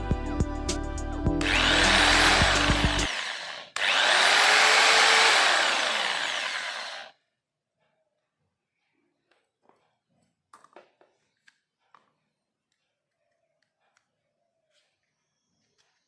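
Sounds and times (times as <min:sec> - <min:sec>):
electric hammer drill whirring: 0:01.4 - 0:07.1.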